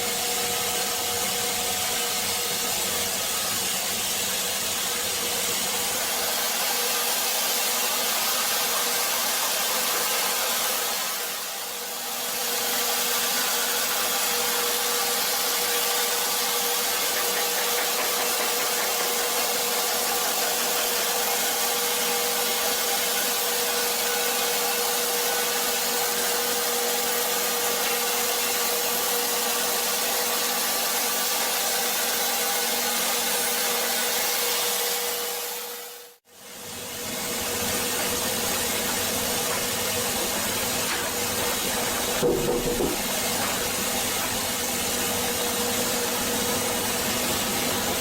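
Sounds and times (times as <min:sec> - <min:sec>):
wood-cutting machine whine: 0:00.0 - 0:48.0
hiss of cutting: 0:05.6 - 0:29.3.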